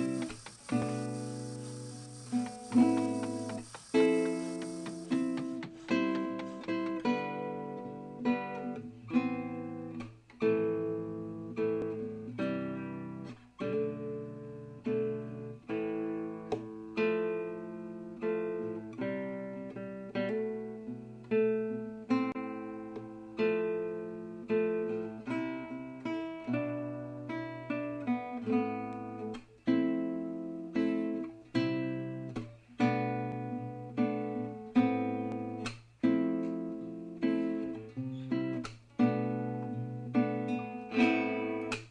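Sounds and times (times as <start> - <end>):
acoustic guitar strumming: 0.0 - 9.9, 32.1 - 41.9.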